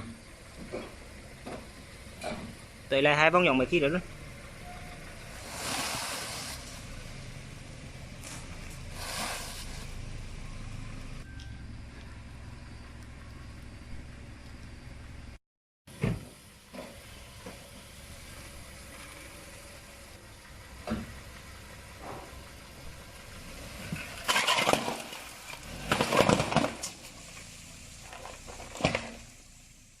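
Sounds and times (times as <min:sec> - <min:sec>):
car humming: 0:00.0 - 0:30.0
car tyres crushing objects: 0:05.1 - 0:07.5, 0:20.8 - 0:29.6.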